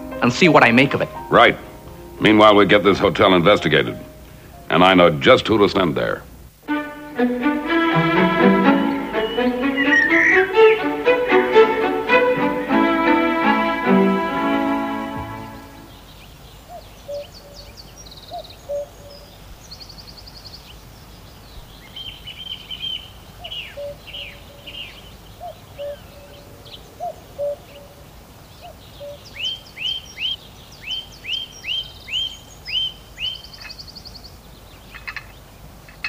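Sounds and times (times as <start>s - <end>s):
birds chirping and trilling: 0.0s - 6.5s, 8.2s - 36.0s
faint steady hiss: 0.0s - 36.0s
quick downward-sweeping chirps: 8.2s - 11.2s.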